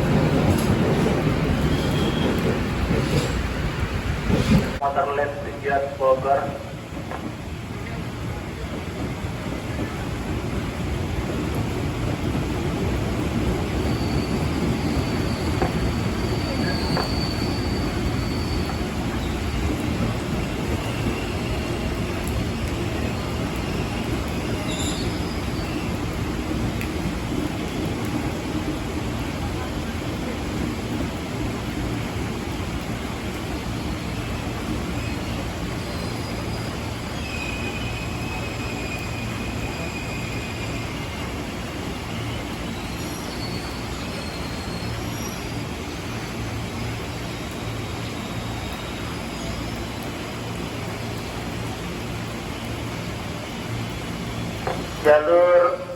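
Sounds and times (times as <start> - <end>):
train wheels rumbling on rails: 0.0 - 55.9
high wheel squeal: 1.7 - 2.4, 13.8 - 19.6, 23.7 - 26.0.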